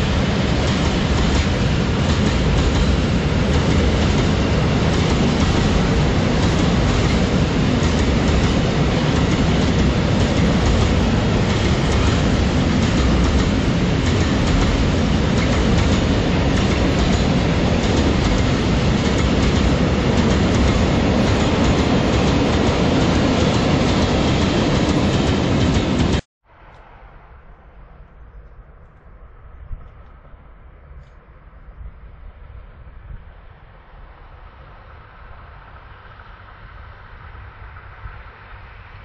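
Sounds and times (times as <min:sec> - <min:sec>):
train wheels clicking over rails: 0:00.0 - 0:26.3
freight train rumbling past: 0:00.0 - 0:28.2, 0:31.6 - 0:39.0.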